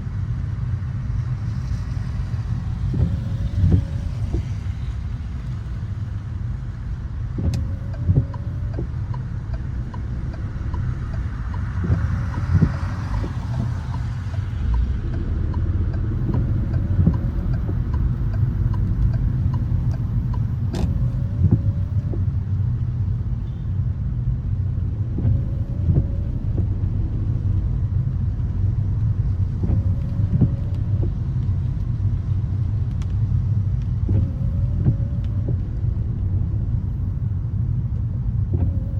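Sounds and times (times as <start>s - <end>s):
car engine and tyres rumbling: 0.0s - 38.9s.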